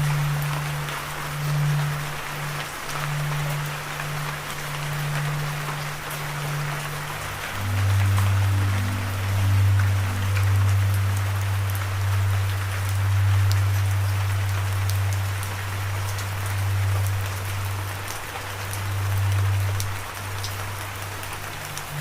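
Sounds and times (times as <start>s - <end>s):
low sustained drone: 0.0s - 22.0s
steady rain: 0.0s - 22.0s.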